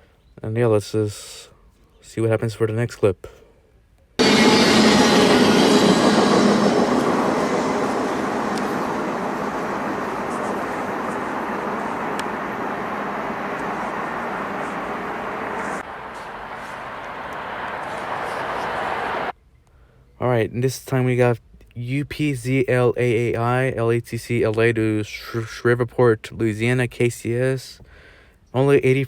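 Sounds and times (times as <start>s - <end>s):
train wheels rumbling on track: 4.2s - 19.3s.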